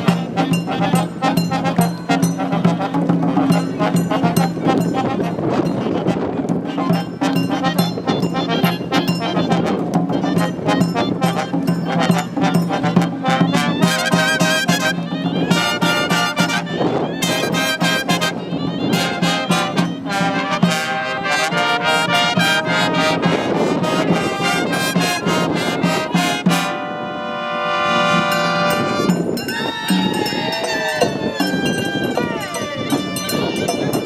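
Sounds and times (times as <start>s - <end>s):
brass band playing: 0.0s - 34.0s
wind buffeting microphone: 0.0s - 34.0s.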